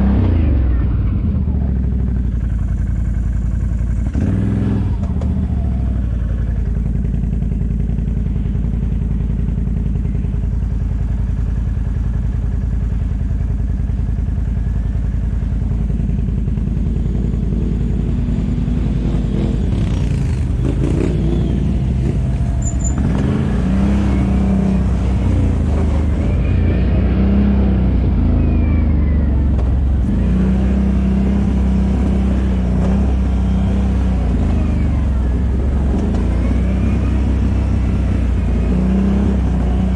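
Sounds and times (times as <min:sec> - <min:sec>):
quad bike engine revving: 0:04.0 - 0:06.8, 0:16.8 - 0:39.9.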